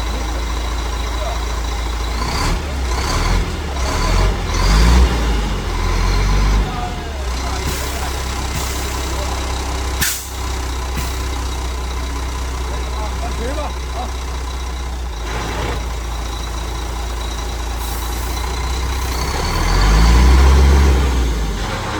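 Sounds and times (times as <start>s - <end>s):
truck diesel engine running: 0.0s - 21.9s
sharp air hiss: 10.0s - 10.4s.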